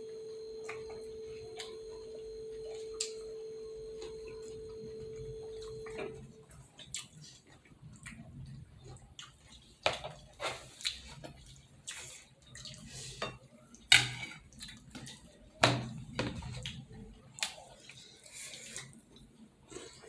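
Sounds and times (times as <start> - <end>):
chewing food: 5.2 - 13.9.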